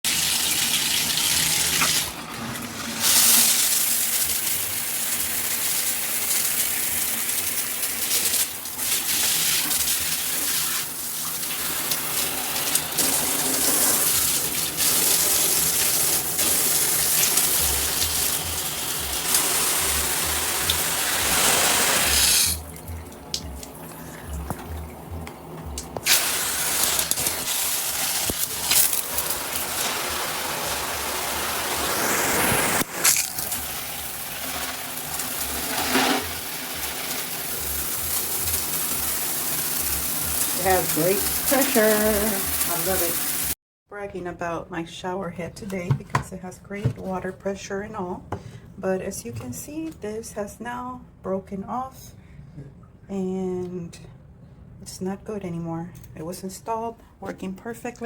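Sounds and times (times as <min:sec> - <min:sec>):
water spraying from shower head: 0:02.8 - 0:24.6, 0:25.8 - 0:43.6.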